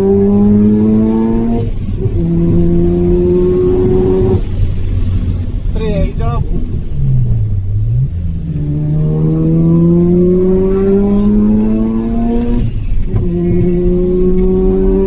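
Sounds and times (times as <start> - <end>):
high turbo whine: 0.0 - 15.0
rotary engine accelerating hard: 0.0 - 15.0.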